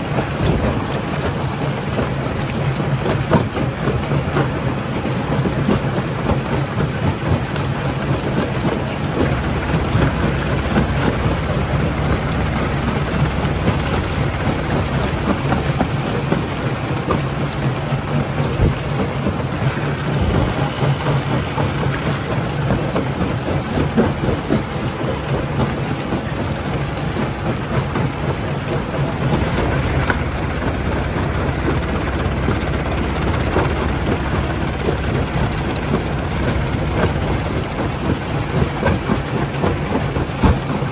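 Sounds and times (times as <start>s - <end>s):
machine hum: 7.1s - 40.9s
heavy knocks: 29.0s - 39.4s.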